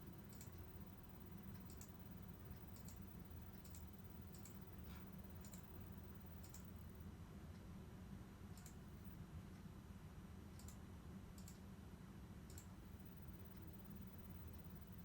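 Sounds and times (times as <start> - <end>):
low steady hum: 0.0 - 15.0
faint sharp clicks: 2.7 - 3.0, 8.5 - 8.8, 10.6 - 10.8, 12.5 - 12.7.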